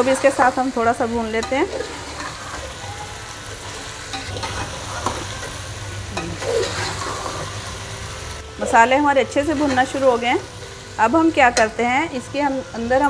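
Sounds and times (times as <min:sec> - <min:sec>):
food sizzling in oil: 0:00.0 - 0:13.0
metal spoon scraping pot: 0:01.4 - 0:02.8, 0:06.2 - 0:07.5.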